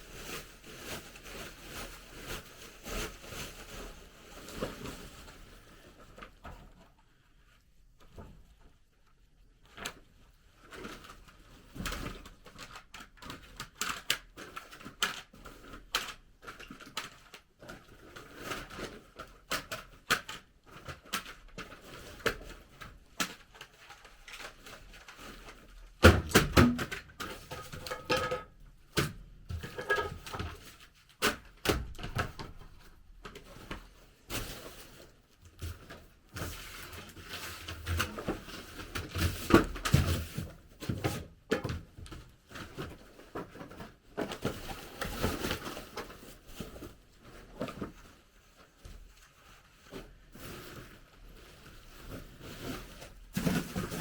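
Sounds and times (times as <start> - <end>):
tools tapping and knocking: 26.3 - 28.6, 29.5 - 30.6.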